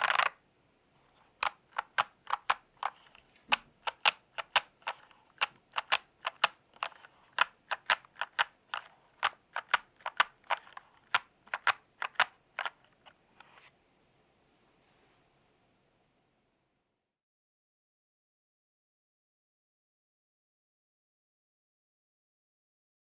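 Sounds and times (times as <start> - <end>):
mechanical keyboard typing: 0.0 - 0.4, 1.4 - 12.8.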